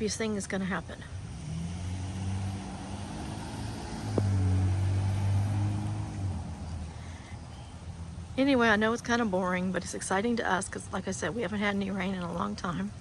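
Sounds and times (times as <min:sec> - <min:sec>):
car passing by: 0:01.2 - 0:08.3.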